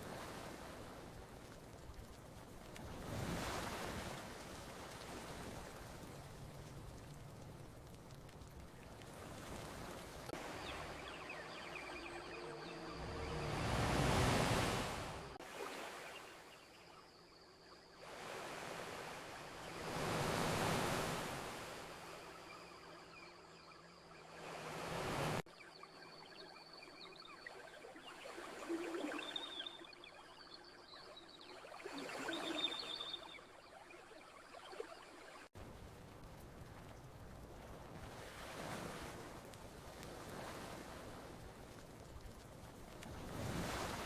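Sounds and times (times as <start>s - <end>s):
ocean waves breaking: 0.0s - 16.8s, 18.0s - 25.5s, 35.4s - 44.0s
faint high chirps: 10.4s - 14.5s, 25.6s - 35.4s.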